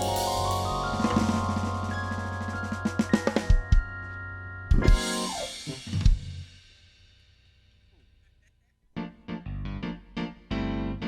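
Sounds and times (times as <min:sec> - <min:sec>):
drum and cymbal hits: 0:00.0 - 0:04.0, 0:04.7 - 0:07.5
instrumental trio music: 0:00.0 - 0:06.7.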